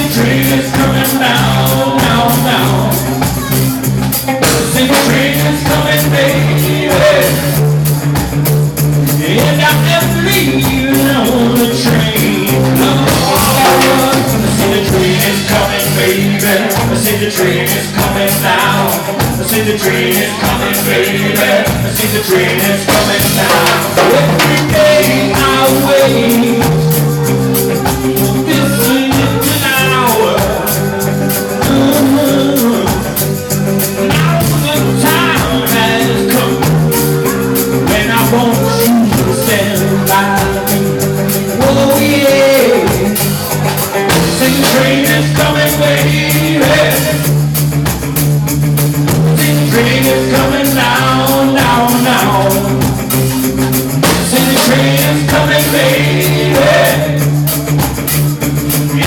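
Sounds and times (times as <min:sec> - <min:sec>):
bending lead guitar line: 0:00.0 - 0:59.0
drum and cymbal beat: 0:00.0 - 0:59.0
rock band playing: 0:00.0 - 0:59.0.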